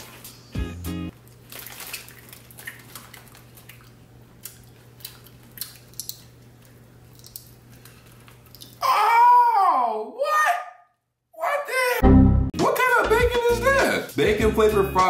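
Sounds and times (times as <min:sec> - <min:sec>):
low electrical hum: 0:00.0 - 0:10.2
crunchy snack being chewed: 0:04.4 - 0:08.8.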